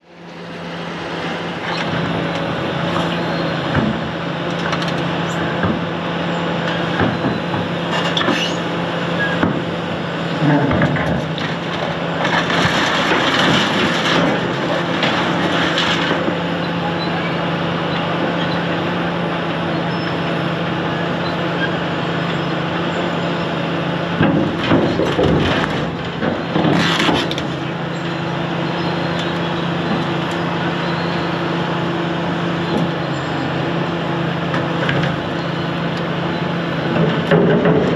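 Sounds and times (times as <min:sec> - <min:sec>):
diesel engine running: 0:00.0 - 0:37.9
concrete crunching and cracking: 0:10.6 - 0:16.4.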